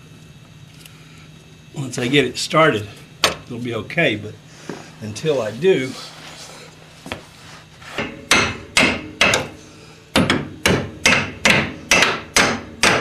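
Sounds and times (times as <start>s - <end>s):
hammer striking metal: 8.0s - 9.5s, 10.2s - 13.0s.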